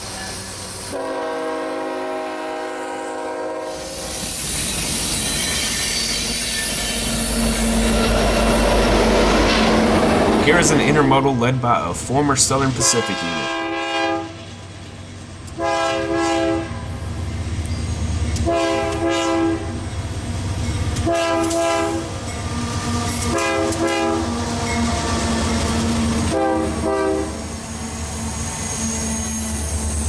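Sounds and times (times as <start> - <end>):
rumble of rolling train: 0.0 - 30.0
locomotive air horn blasts: 0.9 - 4.0, 12.8 - 14.5, 15.6 - 17.0, 18.4 - 19.8, 21.0 - 22.1, 22.8 - 24.4, 26.2 - 27.4.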